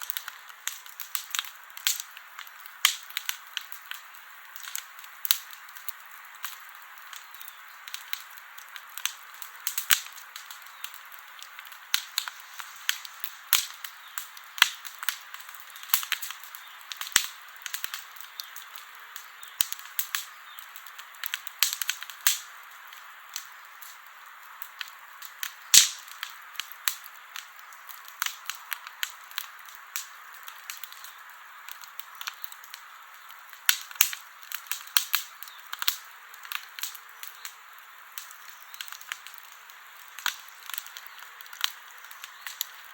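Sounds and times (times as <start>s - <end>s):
campfire crackling and popping: 0.0s - 42.9s
soft hiss of burning: 0.0s - 42.9s.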